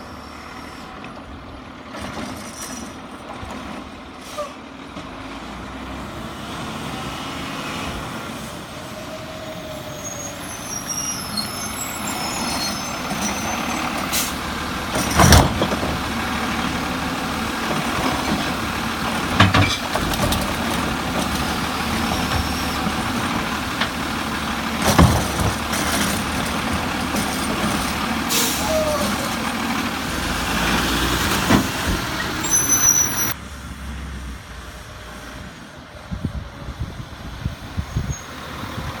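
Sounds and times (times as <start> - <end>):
garbage truck engine running: 11.2 - 32.6
loud bangs of carts dumped: 13.1 - 17.0, 17.6 - 30.5.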